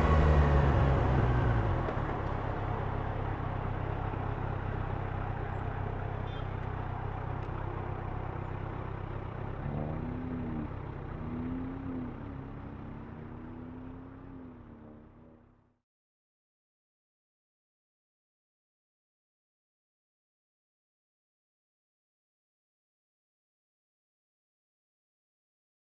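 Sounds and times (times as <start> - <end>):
engine revving: 0.0 - 2.5, 9.4 - 15.2
motor traffic noise: 0.0 - 15.7.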